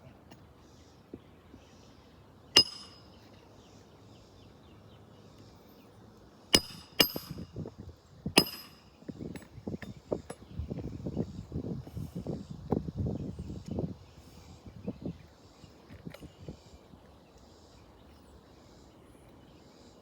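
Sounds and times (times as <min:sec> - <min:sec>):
hammer striking metal: 0:02.6 - 0:03.1, 0:06.6 - 0:07.4, 0:08.4 - 0:08.9.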